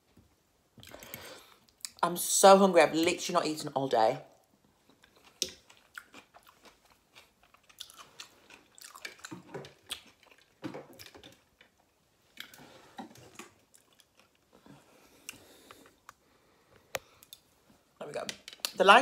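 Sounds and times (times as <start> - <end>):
person chewing food: 0.8 - 2.0, 4.4 - 17.6.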